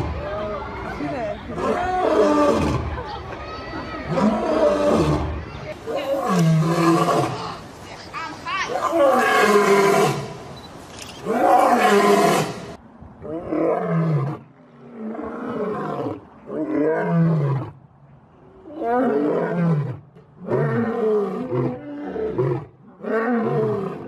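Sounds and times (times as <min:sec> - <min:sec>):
animal roaring: 0:04.1 - 0:05.4, 0:06.0 - 0:07.6, 0:08.7 - 0:10.4, 0:11.2 - 0:17.8.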